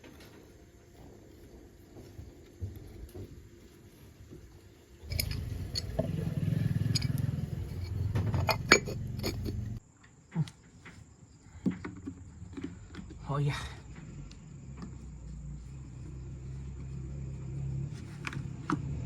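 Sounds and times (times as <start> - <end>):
two-stroke engine pulsing: 5.0 - 9.8.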